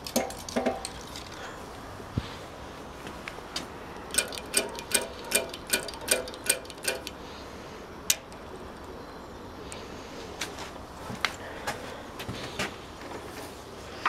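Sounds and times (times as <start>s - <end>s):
metallic clicking: 4.0s - 7.2s, 8.1s - 8.9s.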